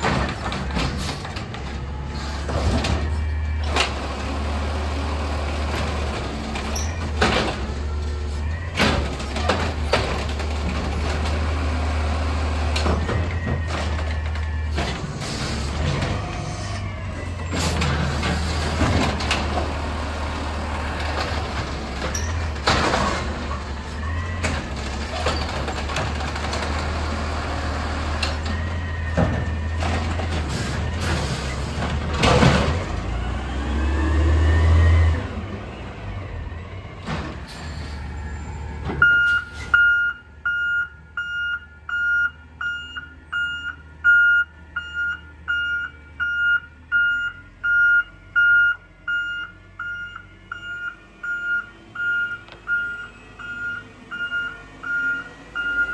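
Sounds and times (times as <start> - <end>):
garbage truck engine running: 0.0 - 39.7
reversing alarm beeps: 38.3 - 55.9.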